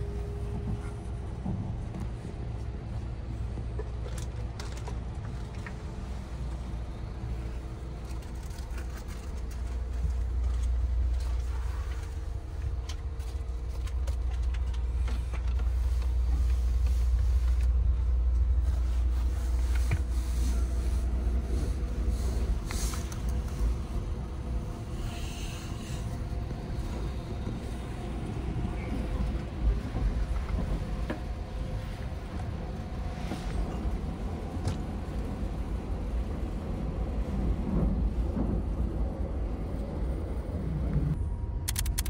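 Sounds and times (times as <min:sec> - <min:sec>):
train interior rumble: 0:00.0 - 0:42.0
small clicks and creaks: 0:08.0 - 0:12.2.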